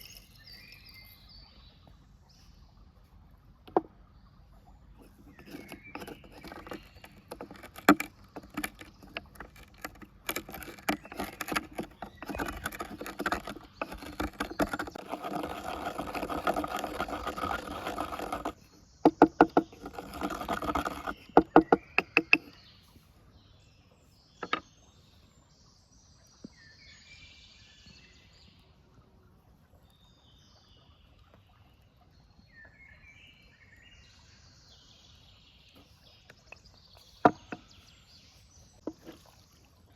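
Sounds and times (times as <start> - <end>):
faint bird chirps: 0.0 - 2.7
steady scraping: 5.0 - 22.6
knocks and clicks: 5.1 - 22.6, 24.4 - 24.6.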